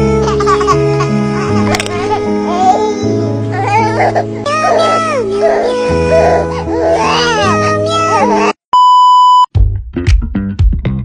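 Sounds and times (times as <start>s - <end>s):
background music: 0.0s - 8.6s
loud steady beep: 8.7s - 9.5s.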